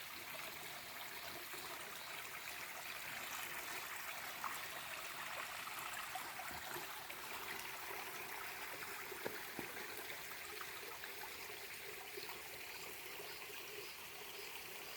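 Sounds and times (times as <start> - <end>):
stream babbling over stones: 0.0 - 14.9
small water splashes: 2.5 - 12.6.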